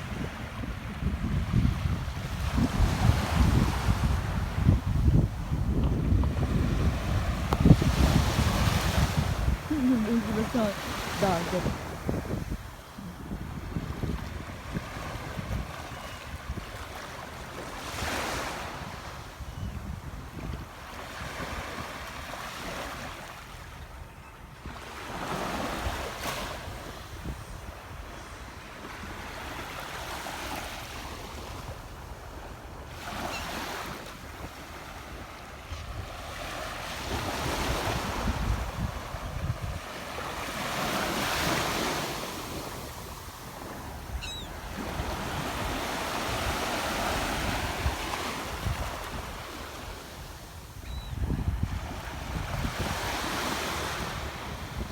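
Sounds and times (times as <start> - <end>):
wind buffeting microphone: 0.0 - 15.8, 37.1 - 39.9, 50.8 - 54.9
waves washing in: 2.1 - 15.7.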